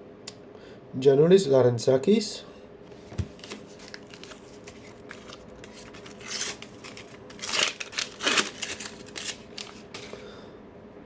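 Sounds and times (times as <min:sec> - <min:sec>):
wrapper ripping and rustling: 0:03.0 - 0:10.2.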